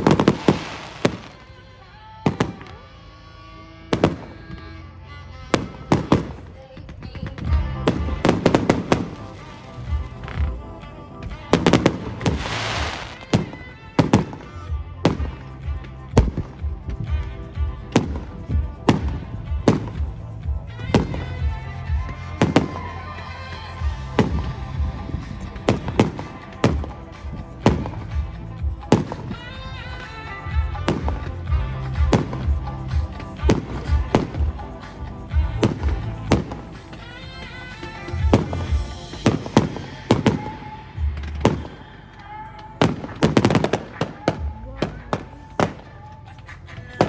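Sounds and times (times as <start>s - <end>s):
hissing crackling firework burst: 0.0s - 1.4s, 11.6s - 14.6s
firework shells bursting: 0.0s - 1.5s, 11.3s - 15.6s, 42.8s - 46.0s.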